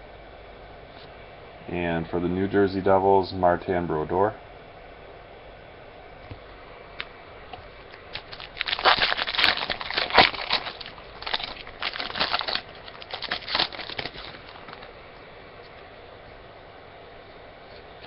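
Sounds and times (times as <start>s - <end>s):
card pack wrapper crinkling and tearing: 8.0s - 14.9s.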